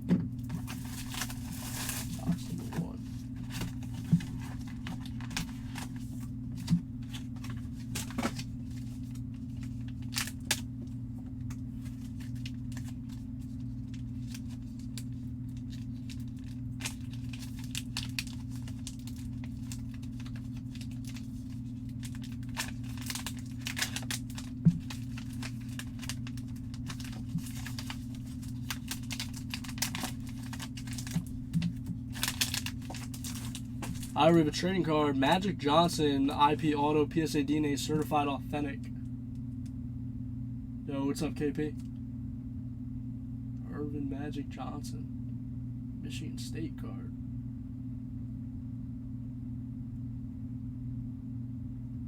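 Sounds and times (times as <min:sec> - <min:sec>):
steady low hum: 0:00.0 - 0:52.0
wrapping tearing and crinkling: 0:00.4 - 0:10.7, 0:11.5 - 0:34.2
cards clicking and rustling: 0:03.4 - 0:09.0, 0:14.2 - 0:34.2.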